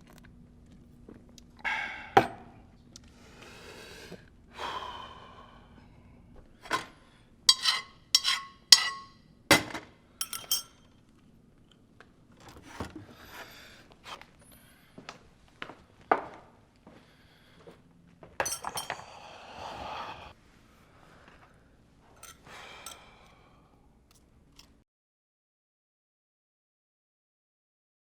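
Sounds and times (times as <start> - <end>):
glass or crockery clinking: 7.5 - 9.1, 10.2 - 10.8, 18.4 - 19.0.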